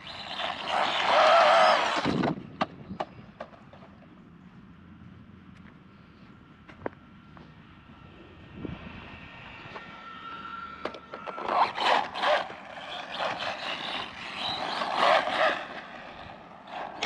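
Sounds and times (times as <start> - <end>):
electric motor whine: 0.0 - 2.4, 7.3 - 17.0
tyres scraping over dirt: 0.0 - 2.4, 10.8 - 17.0.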